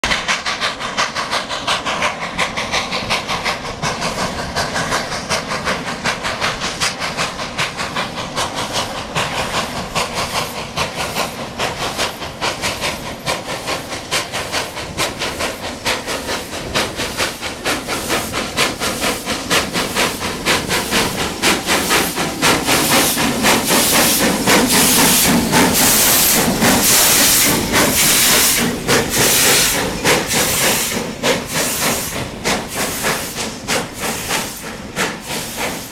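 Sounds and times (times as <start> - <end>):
hissing steam: 0.0 - 35.9
steam locomotive chuffing: 0.0 - 35.9.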